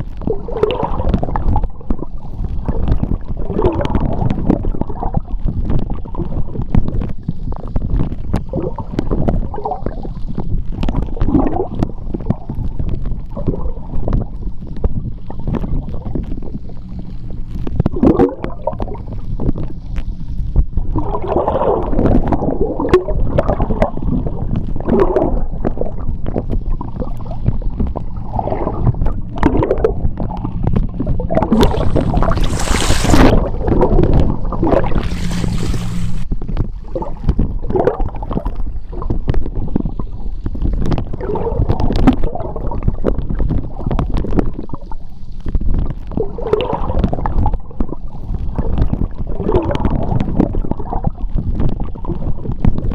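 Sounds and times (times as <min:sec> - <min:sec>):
underwater rumble of moving water: 0:00.0 - 0:52.9
water gurgling: 0:15.2 - 0:19.9, 0:24.7 - 0:36.3
hissing bubble bursts: 0:31.3 - 0:36.3.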